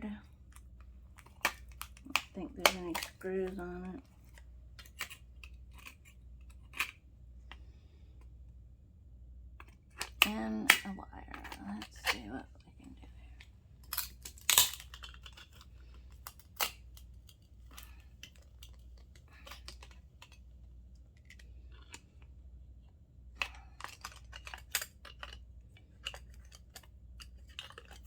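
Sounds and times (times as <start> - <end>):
small metal parts clicking: 13.8 - 20.4, 23.4 - 28.0.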